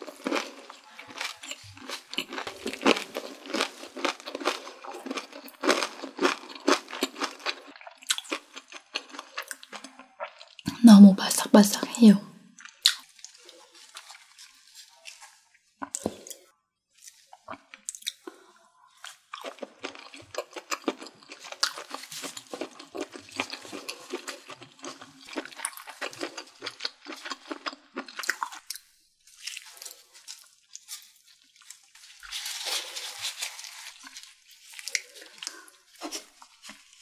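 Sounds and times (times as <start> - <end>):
chewing crunchy food: 0.0 - 10.7, 12.5 - 37.0
rustle of leaves being folded: 13.3 - 15.5, 29.2 - 37.0.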